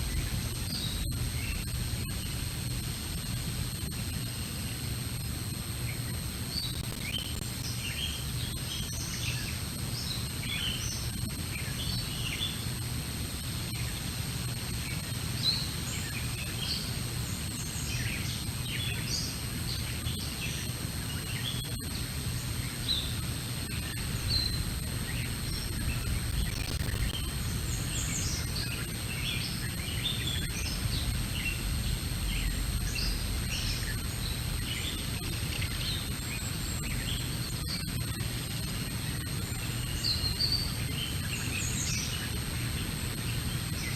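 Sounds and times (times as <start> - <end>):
small birds chirping: 5.8 - 12.7, 14.7 - 43.9
low outdoor rumble: 24.0 - 28.4, 30.7 - 34.6.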